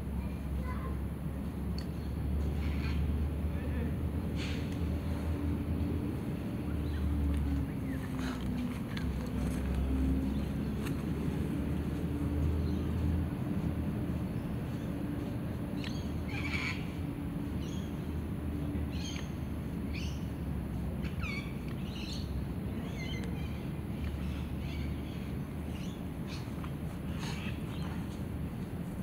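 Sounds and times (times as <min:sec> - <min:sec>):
birds calling: 0:06.6 - 0:28.7.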